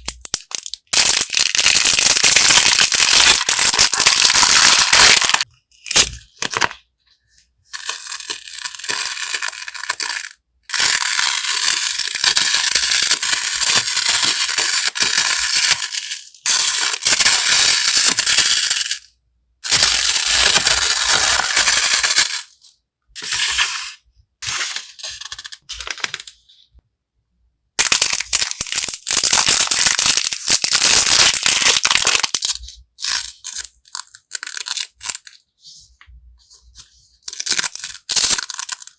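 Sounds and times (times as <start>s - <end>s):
packaging rustling: 0.6s - 6.8s, 23.2s - 26.4s.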